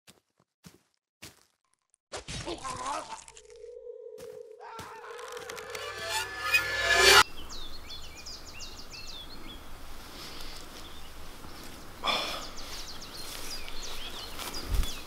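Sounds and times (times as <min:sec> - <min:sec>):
small birds chirping: 0:10.3 - 0:15.0.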